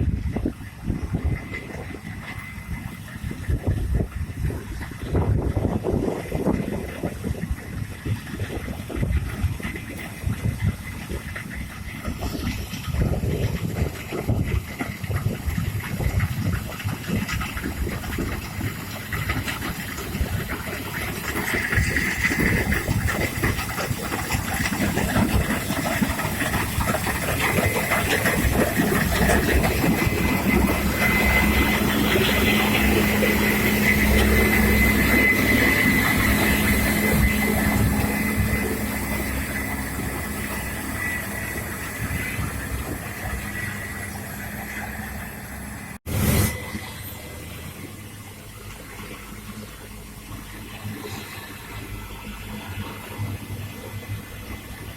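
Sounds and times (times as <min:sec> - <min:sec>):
harvest machine engine whining: 0:00.0 - 0:54.9.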